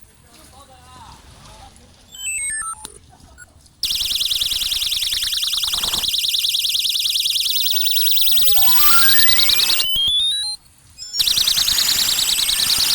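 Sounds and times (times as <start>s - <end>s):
stepped tone climbing in pitch: 3.8s - 12.6s
fast warbling electronic siren: 3.8s - 12.9s.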